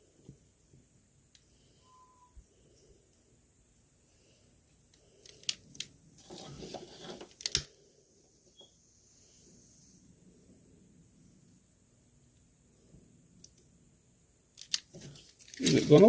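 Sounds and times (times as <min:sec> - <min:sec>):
sharp clicks of small parts: 0:04.9 - 0:05.9, 0:07.3 - 0:07.8, 0:14.5 - 0:15.9
rustling scrape: 0:06.2 - 0:07.4.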